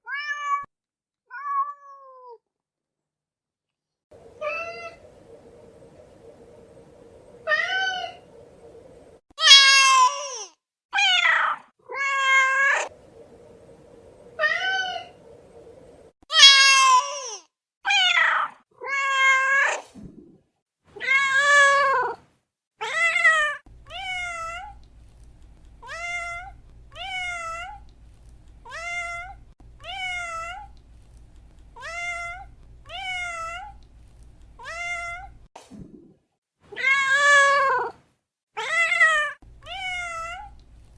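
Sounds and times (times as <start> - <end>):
cat meowing: 7.4 - 8.2, 9.4 - 10.4, 16.3 - 17.2, 22.8 - 24.8, 25.8 - 27.8, 28.6 - 30.7, 31.8 - 33.8, 34.6 - 35.4, 38.6 - 40.6.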